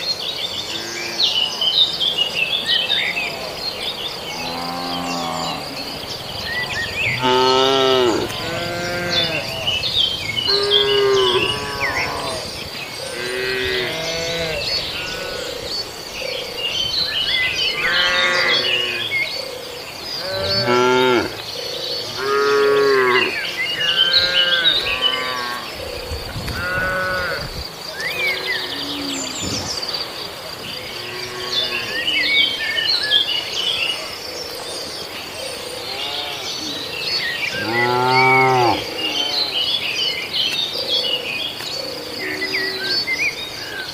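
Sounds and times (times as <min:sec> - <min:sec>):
birds chirping: 0:00.0 - 0:43.9
insects buzzing: 0:03.4 - 0:43.9
cattle mooing: 0:07.1 - 0:09.5, 0:10.5 - 0:12.4, 0:37.6 - 0:39.4.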